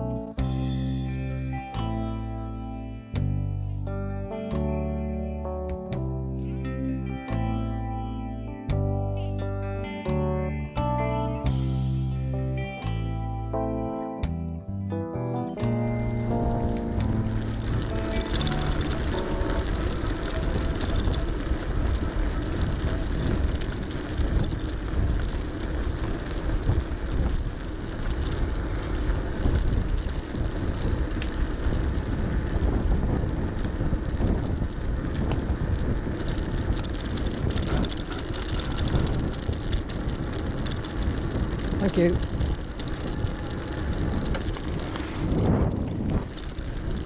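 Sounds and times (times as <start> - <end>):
tyre noise: 15.6 - 47.0
wind buffeting microphone: 15.6 - 47.0.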